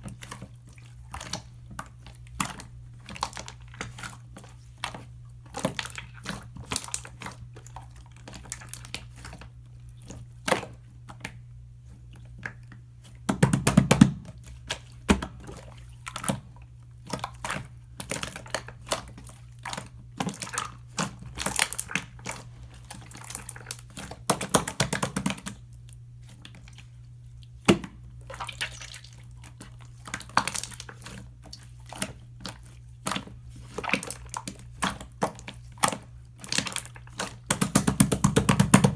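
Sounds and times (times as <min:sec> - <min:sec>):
slime squished by hand: 0:12.4 - 0:38.9.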